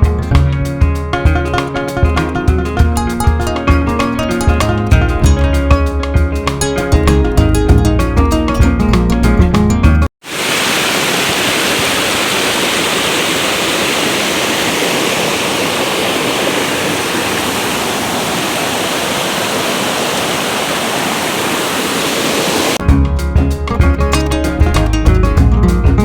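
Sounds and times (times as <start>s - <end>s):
water pouring over waterfall: 10.2s - 22.8s.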